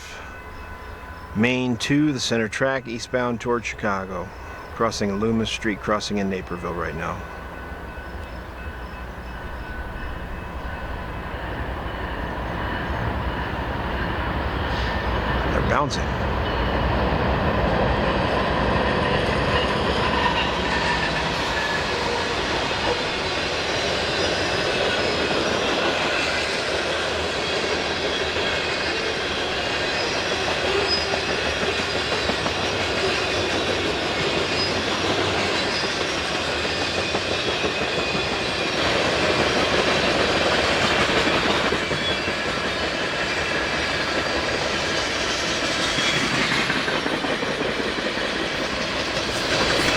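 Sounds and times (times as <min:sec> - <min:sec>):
freight train wheels clattering: 0:07.4 - 0:49.9.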